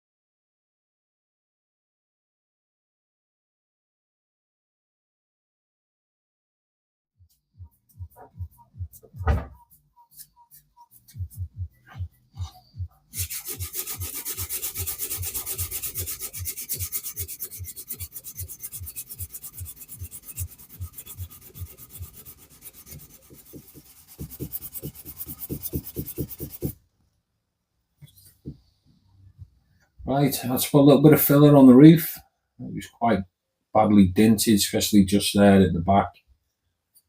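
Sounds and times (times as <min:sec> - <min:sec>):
rubbing metal car body: 0:13.2 - 0:26.8.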